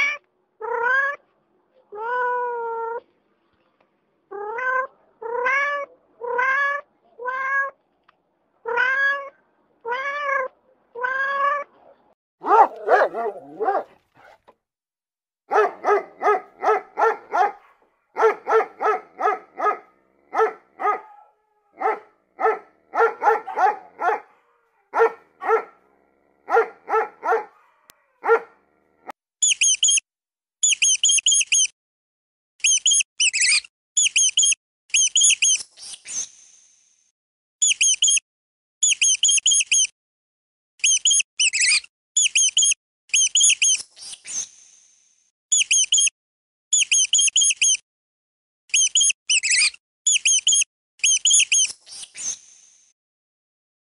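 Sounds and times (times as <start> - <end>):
dog barking: 11.8 - 14.4, 15.5 - 28.6
hamster squeaking: 29.4 - 30.0, 30.6 - 31.7, 32.6 - 36.0, 37.6 - 38.2, 38.8 - 39.9, 40.8 - 44.2, 45.5 - 46.1, 46.7 - 47.8, 48.7 - 51.8.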